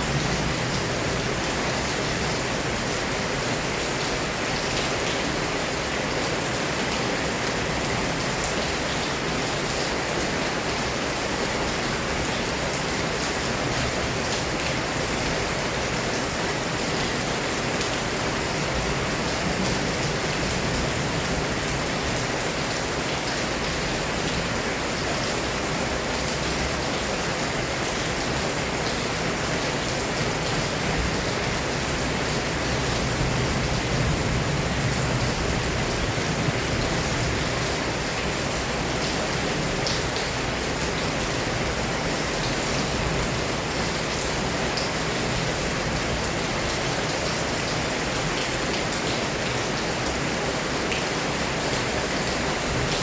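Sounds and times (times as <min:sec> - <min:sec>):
heavy rain pouring: 0:00.0 - 0:53.0.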